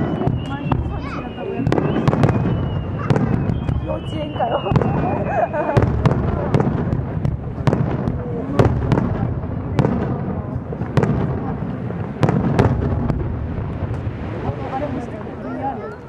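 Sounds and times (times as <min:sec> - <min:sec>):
rumble of booms and echoes: 0:00.0 - 0:15.4.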